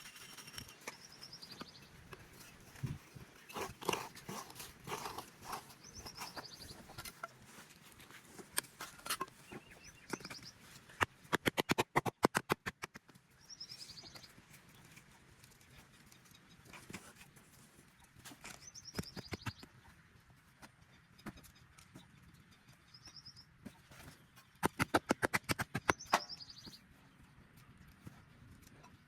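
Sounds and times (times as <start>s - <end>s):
small birds chirping: 0.0s - 11.8s, 13.1s - 29.0s
rapid sharp clicks: 11.0s - 13.2s, 24.6s - 26.2s.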